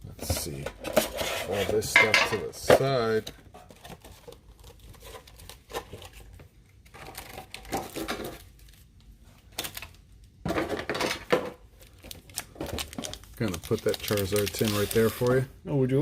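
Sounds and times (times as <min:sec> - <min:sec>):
clatter of tins: 0:00.2 - 0:02.9, 0:06.9 - 0:08.4, 0:10.4 - 0:11.6
card tins and packaging handled: 0:11.8 - 0:15.5.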